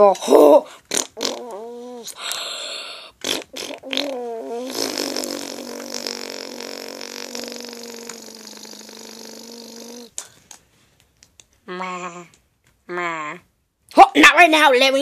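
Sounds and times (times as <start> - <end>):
child making fart noises: 0.0 - 2.2, 3.1 - 10.3.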